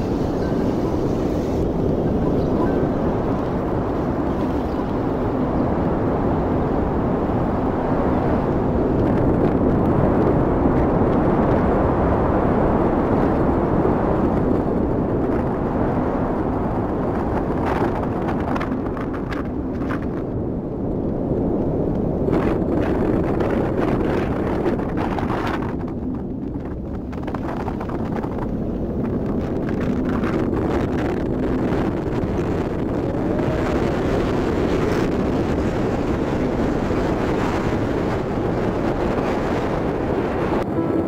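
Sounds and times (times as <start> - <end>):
strong wind on microphone: 0.0 - 41.0
crackles and taps: 17.3 - 20.3, 24.6 - 31.0.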